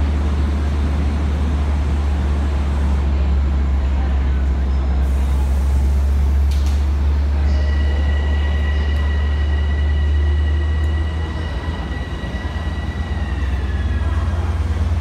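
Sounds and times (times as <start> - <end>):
train low rumble: 0.0 - 15.0
electric train high whine: 7.2 - 15.0.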